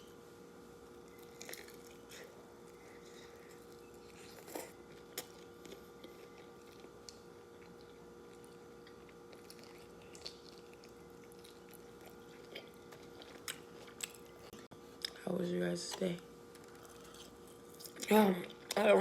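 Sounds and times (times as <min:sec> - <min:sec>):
faint background hum: 0:00.0 - 0:19.0
person chewing: 0:01.0 - 0:15.2, 0:16.5 - 0:18.8.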